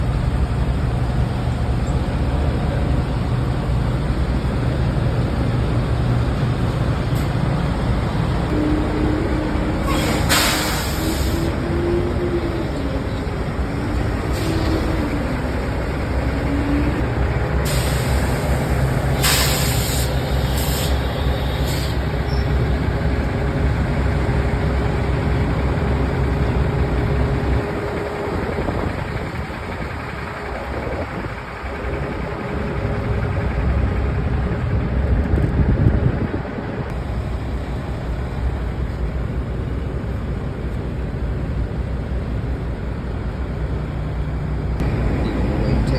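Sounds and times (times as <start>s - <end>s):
truck engine running: 0.0s - 45.9s
compressed air hiss: 9.8s - 11.6s, 14.3s - 15.0s, 17.6s - 22.1s.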